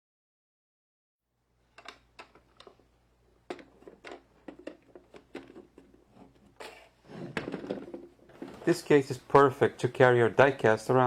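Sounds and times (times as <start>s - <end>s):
plastic toys clicking: 1.8s - 2.8s.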